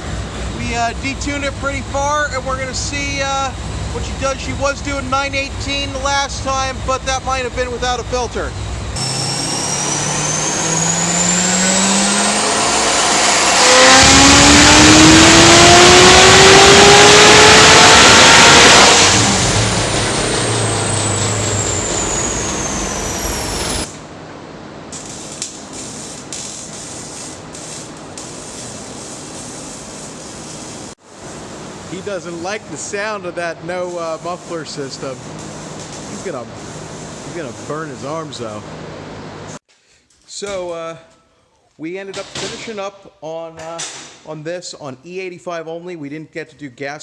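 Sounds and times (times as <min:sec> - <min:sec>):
high whine: 0:00.0 - 0:24.2
dyno rollers humming: 0:00.0 - 0:39.6
car engine revving at full throttle: 0:00.1 - 0:23.9.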